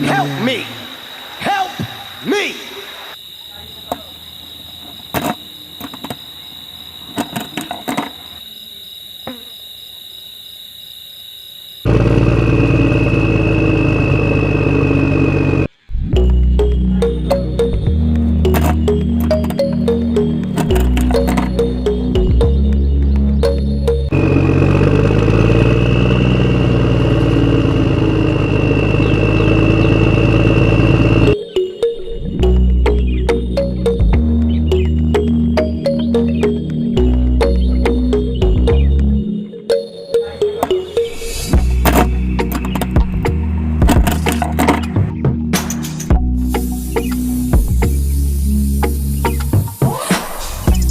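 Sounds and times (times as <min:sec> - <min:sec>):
steady high whine: 0:11.8 - 0:22.0, 0:24.1 - 0:31.4
small motor running: 0:11.9 - 0:15.7, 0:24.1 - 0:31.4.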